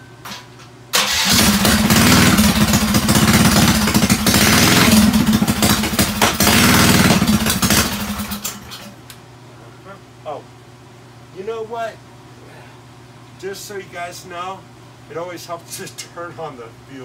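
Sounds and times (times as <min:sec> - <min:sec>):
small engine running: 0:01.0 - 0:08.5.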